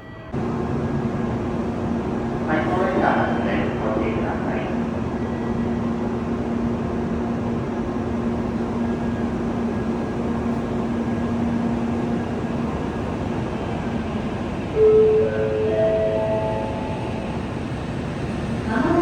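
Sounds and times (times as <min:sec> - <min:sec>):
train rumble with low hum: 0:00.0 - 0:19.0.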